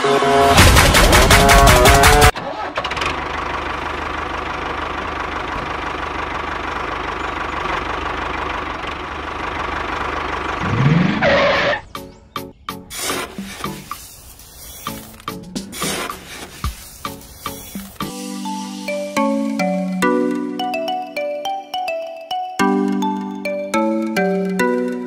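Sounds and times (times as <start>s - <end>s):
background music: 0.0s - 2.3s, 17.0s - 25.0s.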